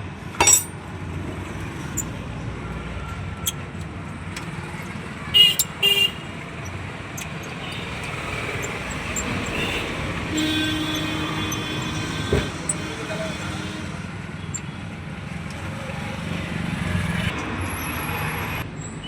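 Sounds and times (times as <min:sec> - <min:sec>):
road traffic rumble: 0:00.0 - 0:19.0
vehicle horn honking: 0:05.3 - 0:06.4, 0:07.2 - 0:14.0.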